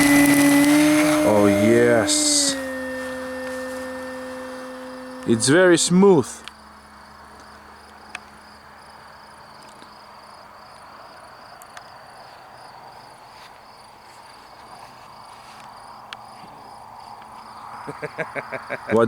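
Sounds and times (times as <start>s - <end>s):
model plane motor whirring: 0.0s - 6.5s
crickets chirping: 0.0s - 19.0s.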